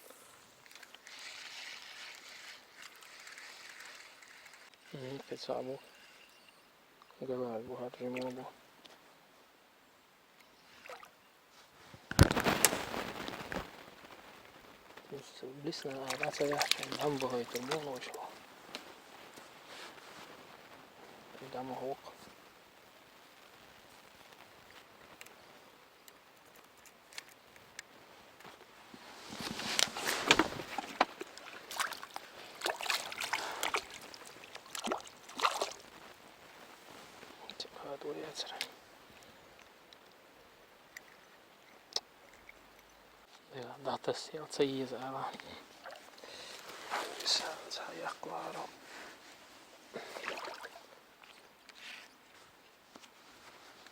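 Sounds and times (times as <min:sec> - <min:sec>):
splash in water: 0:30.3 - 0:35.8, 0:50.0 - 0:51.4.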